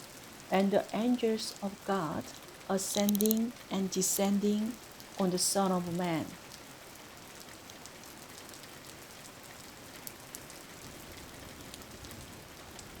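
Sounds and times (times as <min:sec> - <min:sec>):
rain pattering: 0:00.0 - 0:13.0
raindrops ticking: 0:00.8 - 0:05.2.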